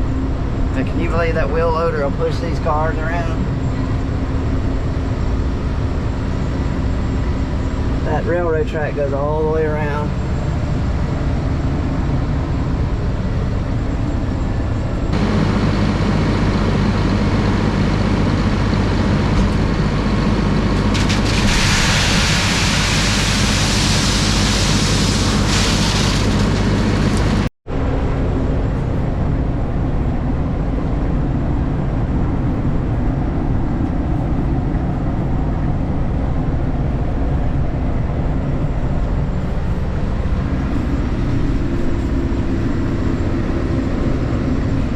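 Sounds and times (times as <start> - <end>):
sprayer engine running: 5.8 - 27.5
loud hiss: 20.9 - 27.5.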